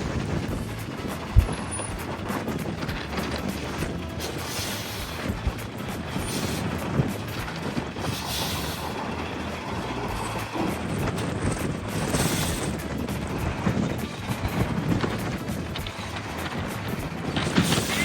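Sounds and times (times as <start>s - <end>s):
truck engine rumbling: 0.0s - 18.0s
air brake hisses: 4.2s - 5.3s, 8.0s - 9.2s, 12.2s - 12.8s, 17.6s - 18.0s.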